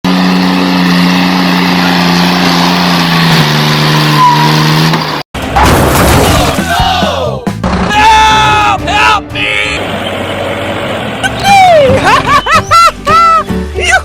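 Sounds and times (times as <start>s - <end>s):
vehicle engine running: 0.1s - 5.2s, 9.5s - 12.8s.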